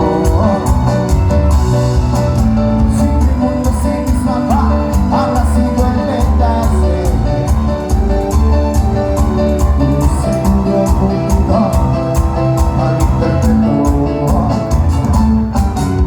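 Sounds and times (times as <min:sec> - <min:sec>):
band playing loud music: 0:00.0 - 0:16.0
heavy bass line: 0:00.0 - 0:16.0.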